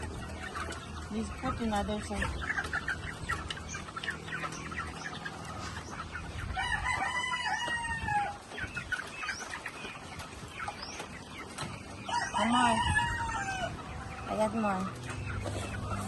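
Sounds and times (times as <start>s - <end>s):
chickens clucking: 0.0s - 16.0s
rooster crowing: 6.6s - 8.3s, 12.1s - 13.8s.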